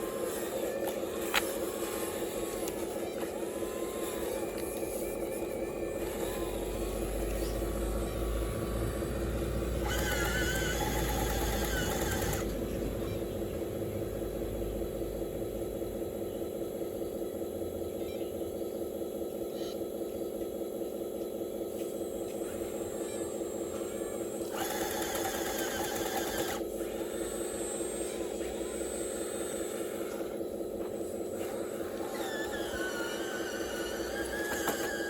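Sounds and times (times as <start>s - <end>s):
hydraulic pump whining: 0.0s - 17.6s, 19.8s - 35.0s.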